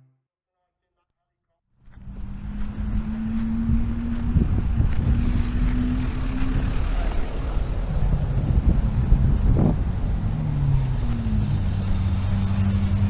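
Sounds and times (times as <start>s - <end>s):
motor vehicle rumble: 1.8s - 13.0s
humming tone: 10.0s - 13.0s.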